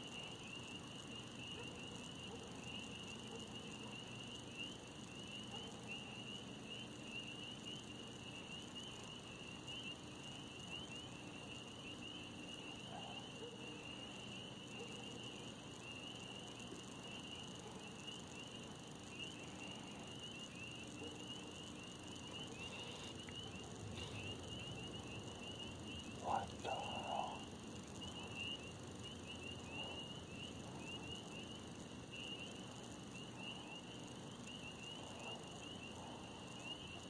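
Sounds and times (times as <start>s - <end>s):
faint background hiss: 0.0s - 37.0s
insects trilling: 0.0s - 37.0s.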